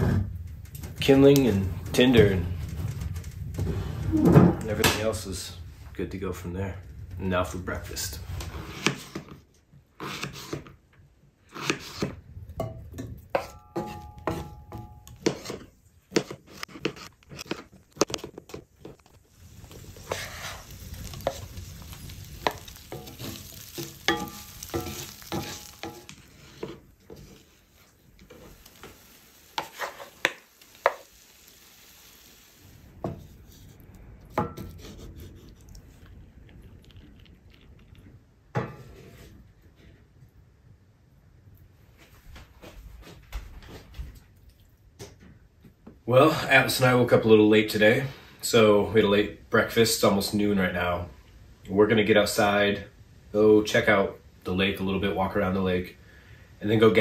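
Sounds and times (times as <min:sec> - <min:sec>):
utensil clinking and scraping pan: 0:11.6 - 0:27.6, 0:29.6 - 0:31.1
sausage and potatoes sizzling in skillet: 0:19.2 - 0:33.7.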